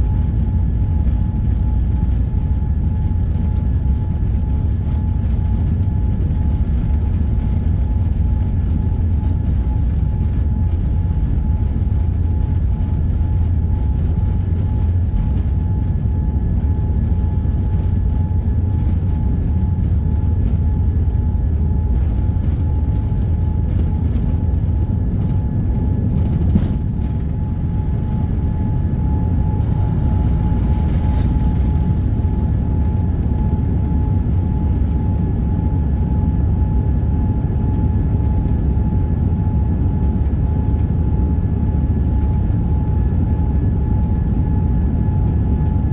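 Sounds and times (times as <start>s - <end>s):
airliner cabin engine rumble: 0.0s - 45.9s
thin steady whine: 23.6s - 36.0s.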